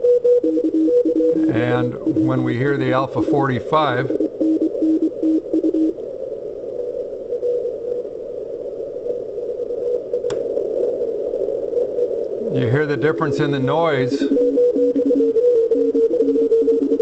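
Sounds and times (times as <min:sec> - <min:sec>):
morse code tone: 0:00.0 - 0:05.9, 0:12.4 - 0:17.0
radio band noise: 0:00.7 - 0:17.0.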